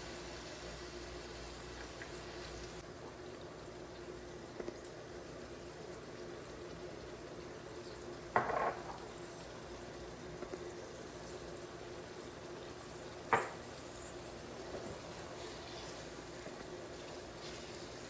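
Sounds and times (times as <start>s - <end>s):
low simmer: 0.0s - 18.0s
cookware knocks: 8.4s - 9.0s, 13.3s - 13.6s
cookware clatter: 8.4s - 9.1s.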